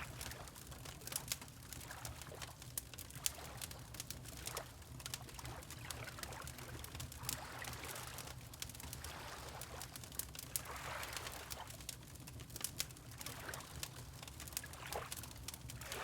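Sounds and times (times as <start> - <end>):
fireplace crackling and popping: 0.0 - 7.4, 8.1 - 16.0
water lapping: 7.3 - 8.4, 9.0 - 9.8.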